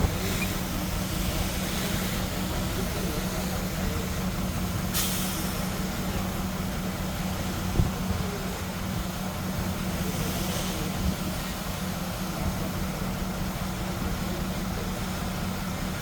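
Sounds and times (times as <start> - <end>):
heavy diesel engines running: 0.0 - 16.0
brief hiss: 4.8 - 5.8.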